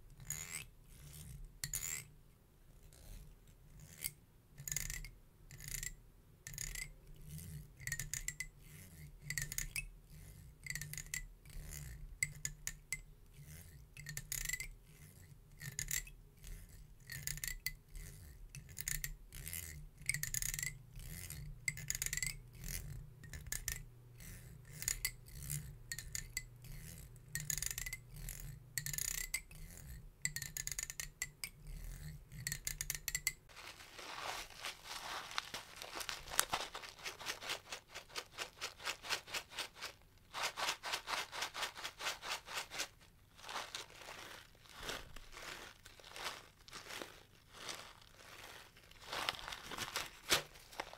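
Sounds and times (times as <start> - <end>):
comb teeth scratchy rasps: 34.7 - 50.9.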